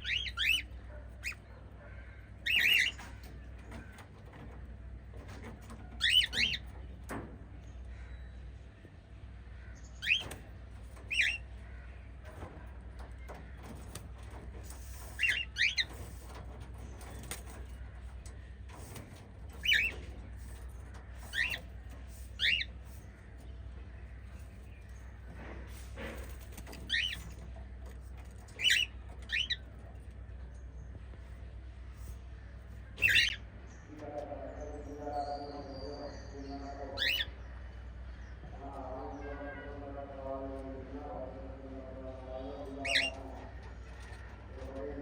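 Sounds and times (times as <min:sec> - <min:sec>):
cockatiels chirping: 0:00.0 - 0:01.4, 0:02.4 - 0:03.1, 0:05.9 - 0:06.7, 0:09.9 - 0:10.4, 0:11.0 - 0:11.5, 0:15.0 - 0:16.1, 0:21.2 - 0:21.7, 0:22.3 - 0:23.0, 0:28.5 - 0:29.7, 0:33.0 - 0:33.4, 0:37.0 - 0:37.4, 0:42.7 - 0:43.4.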